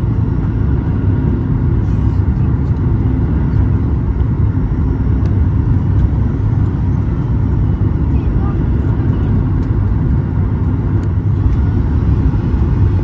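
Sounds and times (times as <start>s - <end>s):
airplane engines and rushing air: 0.0s - 13.0s.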